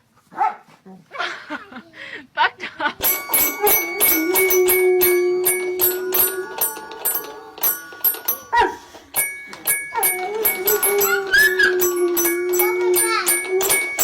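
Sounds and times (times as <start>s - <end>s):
chiming bell-like notes: 3.0s - 14.0s
music with quick ticking beat: 3.0s - 14.0s.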